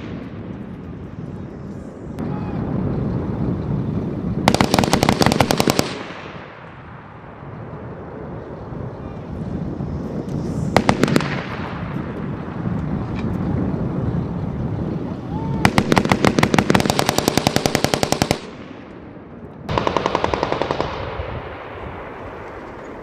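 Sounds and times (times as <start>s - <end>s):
steady low rumble: 0.0s - 23.0s
machine gun firing bursts: 4.5s - 6.4s, 15.6s - 18.6s, 19.7s - 21.1s.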